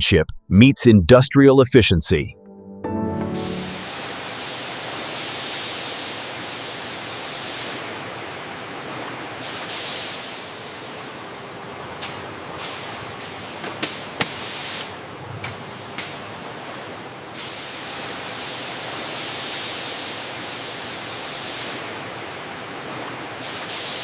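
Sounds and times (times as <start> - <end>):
steady hiss: 10.0 - 19.4.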